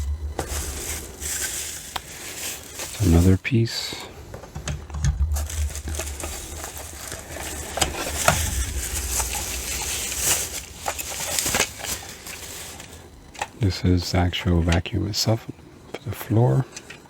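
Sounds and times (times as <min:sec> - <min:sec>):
packaging rustling and crinkling: 0:00.0 - 0:03.4, 0:04.3 - 0:13.6
low background rumble: 0:00.0 - 0:16.0.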